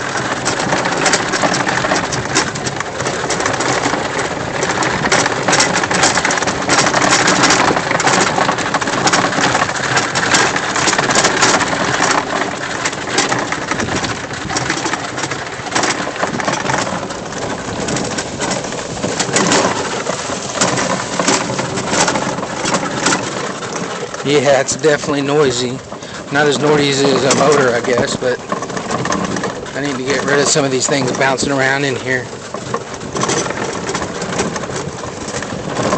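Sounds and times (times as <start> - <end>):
gear rattling in cart: 0.0 - 35.9
golf cart driving: 0.0 - 35.9
person speaking: 24.2 - 28.4, 29.8 - 32.3.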